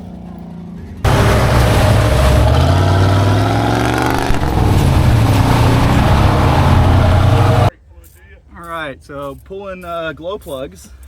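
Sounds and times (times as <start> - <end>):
off-road vehicle engine revving: 1.0 - 7.7
loud rushing noise: 1.1 - 7.7.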